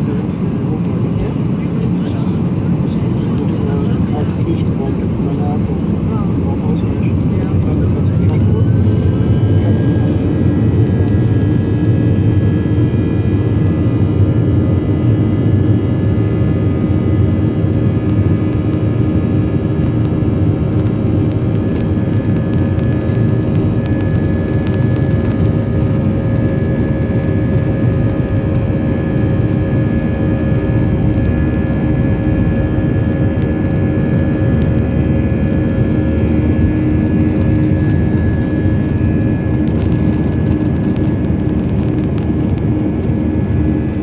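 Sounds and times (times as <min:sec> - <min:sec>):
jet engine rumble in cabin: 0:00.0 - 0:44.0.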